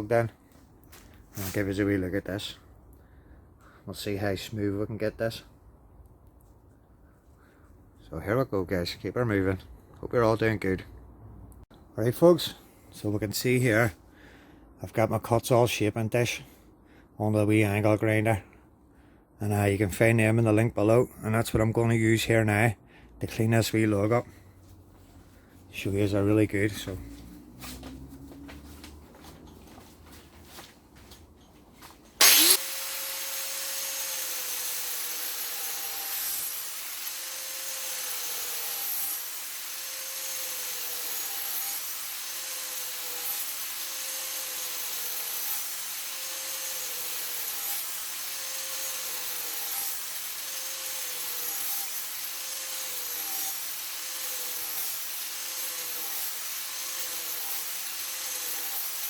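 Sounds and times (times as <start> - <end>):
angle grinder shaving wood: 32.2 - 59.0.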